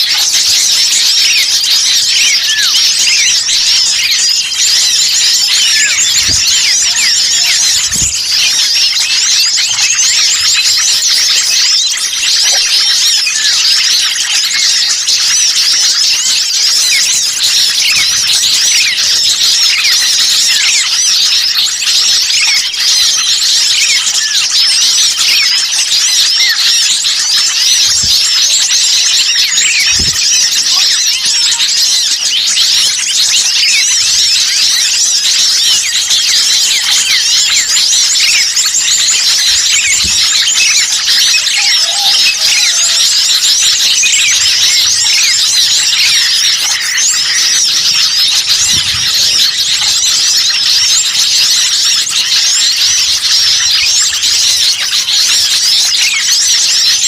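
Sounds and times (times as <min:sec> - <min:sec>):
small songbirds chirping: 0:00.0 - 0:57.0.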